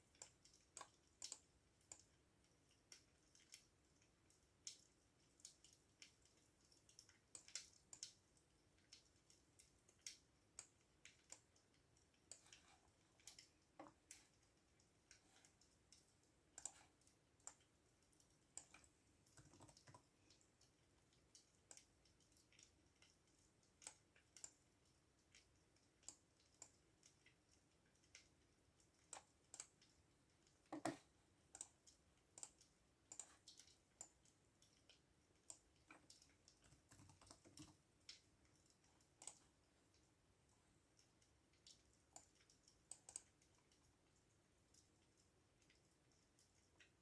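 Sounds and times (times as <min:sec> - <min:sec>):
computer keyboard typing: 0:16.6 - 0:17.7, 0:18.6 - 0:20.2, 0:35.5 - 0:37.8.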